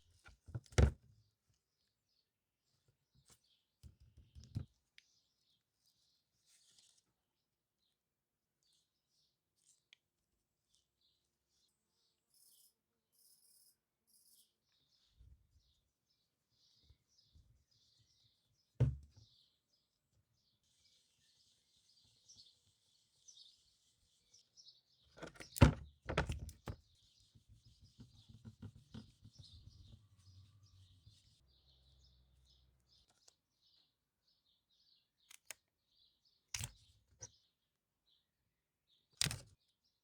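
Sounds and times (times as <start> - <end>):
birds chirping: 20.8 - 35.3.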